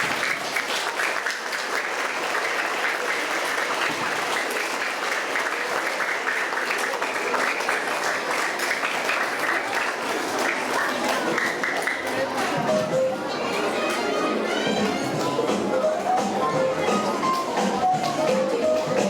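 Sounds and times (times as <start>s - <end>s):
children applauding: 0.0s - 12.6s, 13.3s - 15.4s.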